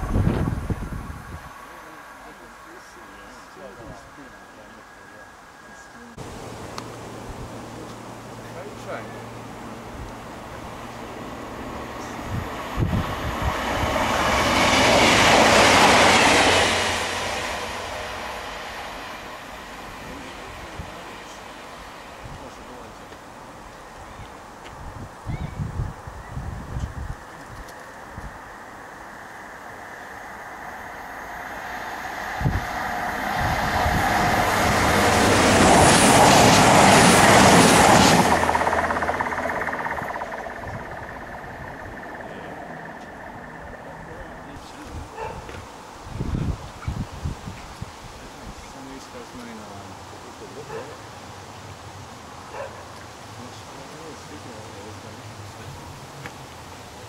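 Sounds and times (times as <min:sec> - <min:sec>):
train passing: 0:00.0 - 0:57.0.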